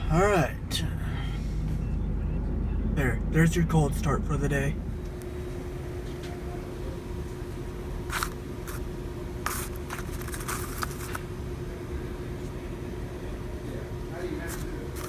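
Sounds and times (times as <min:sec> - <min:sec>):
truck engine idling: 0:00.0 - 0:12.1
handling clicks and scrapes: 0:08.1 - 0:11.3.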